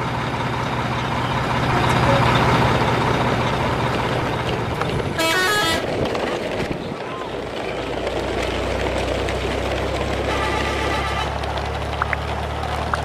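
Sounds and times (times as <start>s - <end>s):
brief pitched tone: 1.6s - 2.7s
toy truck wheels crunching gravel: 4.0s - 13.0s.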